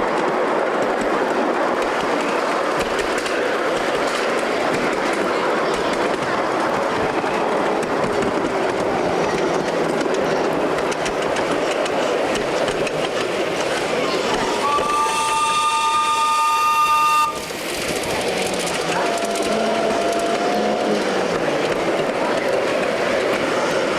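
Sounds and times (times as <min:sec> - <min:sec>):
miniature train running on track: 0:00.0 - 0:23.9
two-tone locomotive whistle: 0:14.5 - 0:17.5, 0:18.9 - 0:21.2.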